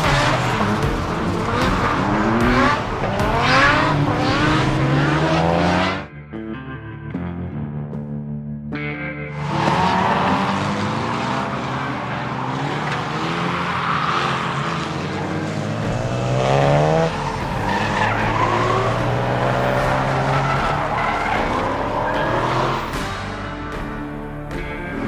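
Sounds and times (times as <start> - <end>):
car engine revving hard: 0.0 - 6.1, 9.4 - 23.3
tyres squealing: 9.4 - 23.0.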